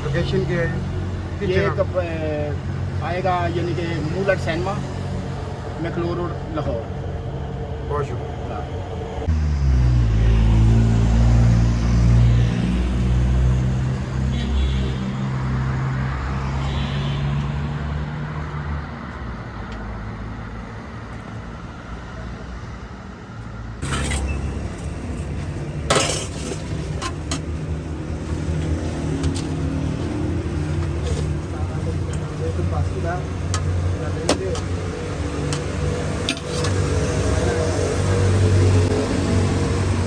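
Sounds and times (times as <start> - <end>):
road noise: 0.0 - 40.0
vehicle engine droning: 23.8 - 40.0.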